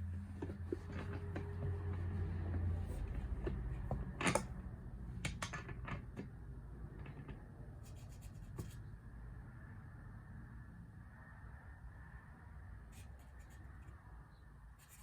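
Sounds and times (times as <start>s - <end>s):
clicks and scraping of hand work: 0.2s - 8.8s.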